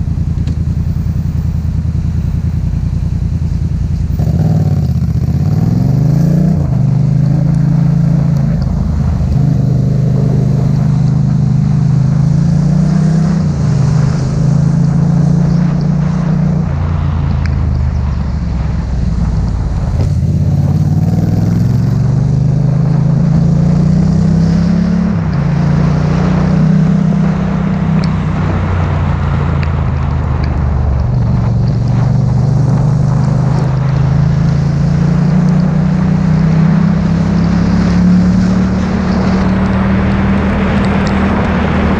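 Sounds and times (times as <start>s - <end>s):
motorcycle engine accelerating: 0.0s - 41.9s
wind and road noise hiss: 0.0s - 41.9s.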